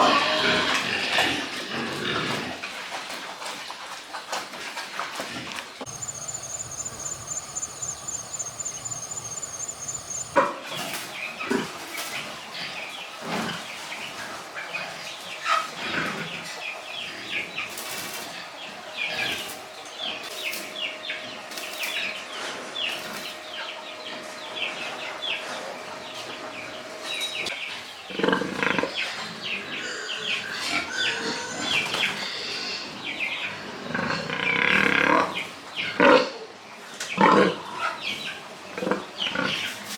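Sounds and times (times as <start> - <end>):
pigs grunting and squealing: 0.0 - 2.7, 28.1 - 36.4
faint high steady tone: 5.9 - 10.4.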